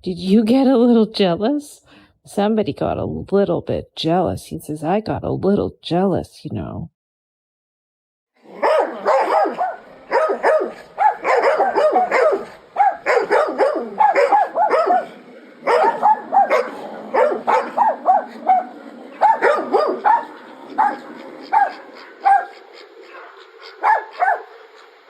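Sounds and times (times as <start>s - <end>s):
dog barking: 8.5s - 24.6s.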